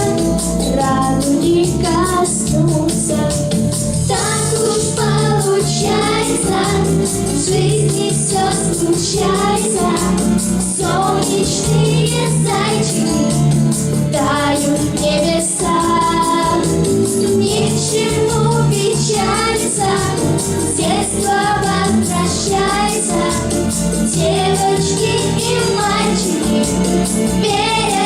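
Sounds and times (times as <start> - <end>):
backing track with steady beat: 0.0 - 28.0
children singing pop song: 0.0 - 28.0.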